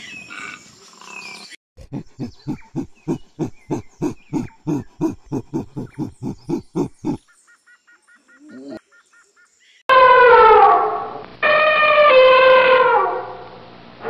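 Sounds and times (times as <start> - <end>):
gorilla hooting: 1.8 - 7.2.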